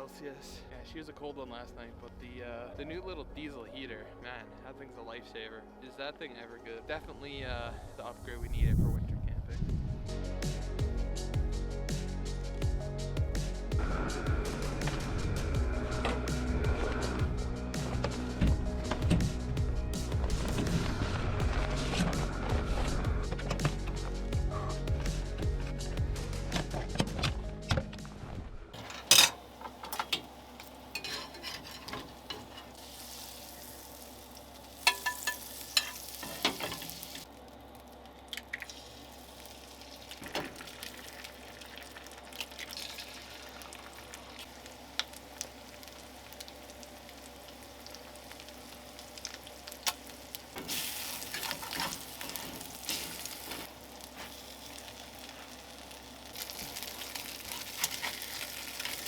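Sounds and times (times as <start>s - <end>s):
food sizzling in a frying pan: 28.8s - 37.3s, 38.5s - 59.0s.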